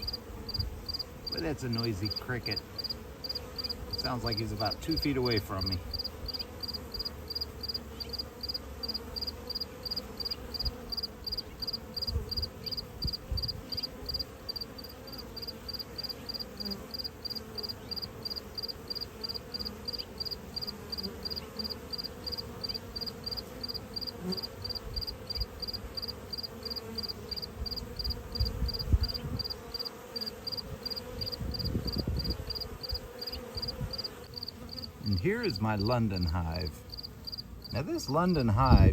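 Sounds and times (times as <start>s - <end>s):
cricket chirping: 0.0s - 4.8s, 5.6s - 35.8s, 36.8s - 38.5s.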